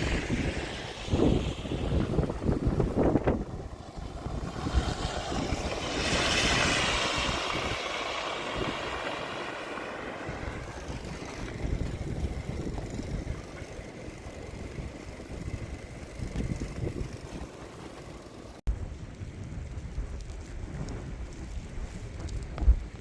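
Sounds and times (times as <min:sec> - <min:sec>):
vehicle passing by: 0:00.0 - 0:17.8
wind buffeting microphone: 0:00.0 - 0:23.0.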